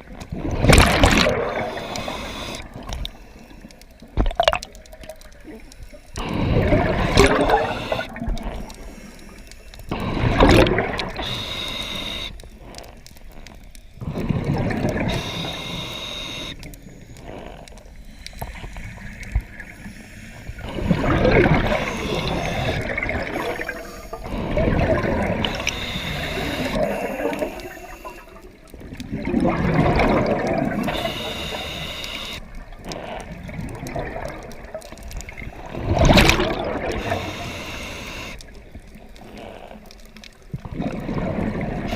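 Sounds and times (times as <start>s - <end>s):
gurgling exhaust bubbles: 6.5s - 8.4s, 20.7s - 25.6s, 28.8s - 30.9s, 35.6s - 37.1s
regulator hiss and whistle: 11.2s - 12.4s, 15.0s - 16.6s, 21.7s - 22.8s, 25.4s - 28.2s, 30.9s - 32.4s, 37.0s - 38.4s.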